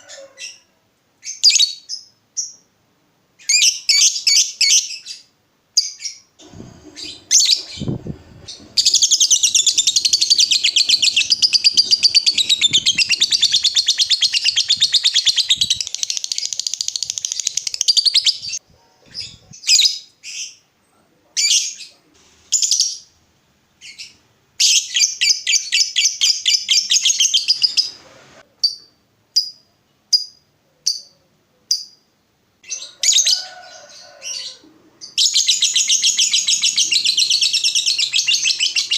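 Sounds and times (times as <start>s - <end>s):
lovebird chirps: 5.8s - 20.4s, 23.9s - 28.0s, 35.0s - 38.9s
lovebird chattering trill: 6.9s - 18.6s, 35.0s - 38.9s.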